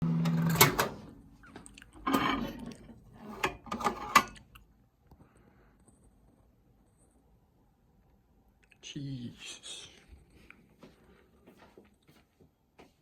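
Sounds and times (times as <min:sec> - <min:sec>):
handling clicks and rustling: 0:00.4 - 0:04.6.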